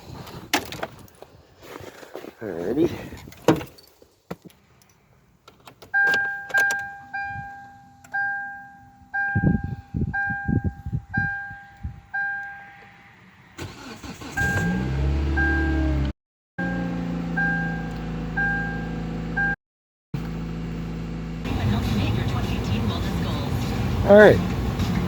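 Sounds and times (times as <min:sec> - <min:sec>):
key and ignition clicks: 0:05.4 - 0:07.1
two-tone car warning chime: 0:06.0 - 0:12.8, 0:14.3 - 0:15.9, 0:16.6 - 0:19.6
car engine starting and running: 0:12.8 - 0:19.6, 0:20.2 - 0:25.0.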